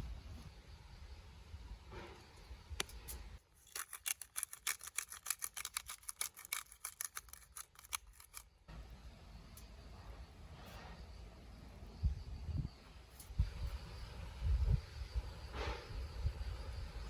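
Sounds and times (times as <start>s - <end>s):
rapid sharp clicks: 3.7s - 8.5s.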